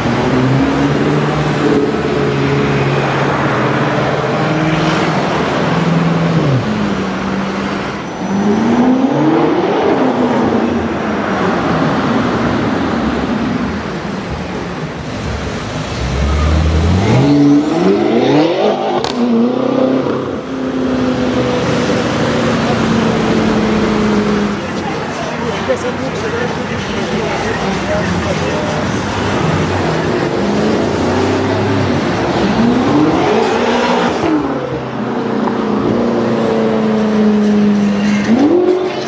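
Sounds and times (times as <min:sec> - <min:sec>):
city traffic: 0:00.0 - 0:39.0
car engine accelerating: 0:15.0 - 0:24.8.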